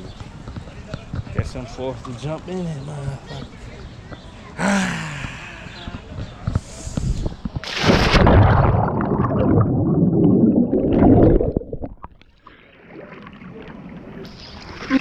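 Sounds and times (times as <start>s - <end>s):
splash into pool: 7.6s - 9.9s
churning gurgling water: 7.6s - 15.0s.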